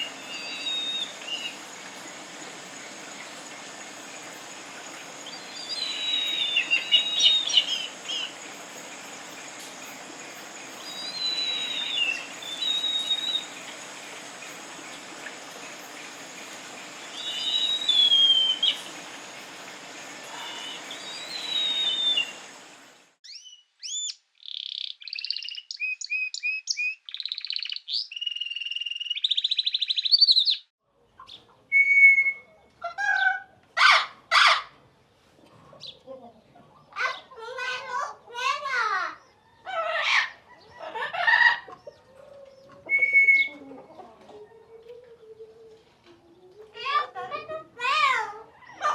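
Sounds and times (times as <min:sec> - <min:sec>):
songbird whistling gliding notes: 0:00.0 - 0:02.0, 0:05.0 - 0:15.0, 0:15.8 - 0:19.5, 0:20.1 - 0:30.7, 0:31.7 - 0:32.6, 0:42.8 - 0:43.6
background hiss: 0:00.0 - 0:23.2
birds chirping and trilling: 0:00.0 - 0:31.8.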